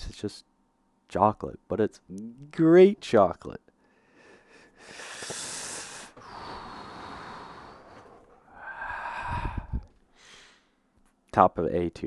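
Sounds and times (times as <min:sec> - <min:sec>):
person humming hmm: 0:02.1 - 0:02.6
person breathing: 0:03.8 - 0:10.8.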